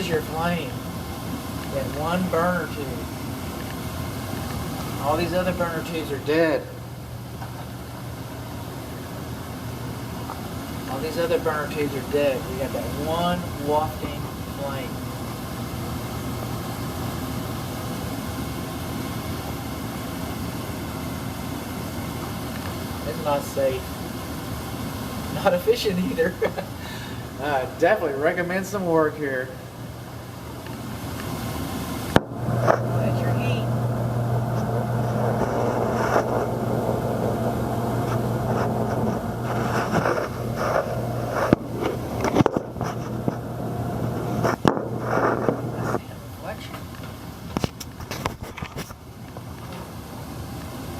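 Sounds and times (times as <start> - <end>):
gas furnace rumbling and hissing: 0.0 - 50.9.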